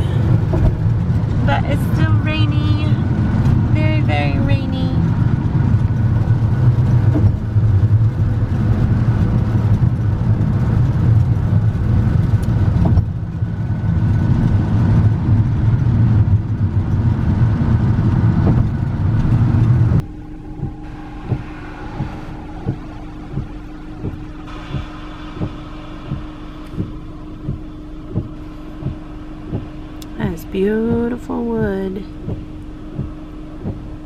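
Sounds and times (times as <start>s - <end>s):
road noise: 0.0s - 34.0s
vehicle engine rumble: 0.0s - 34.0s
hiss: 20.8s - 27.7s.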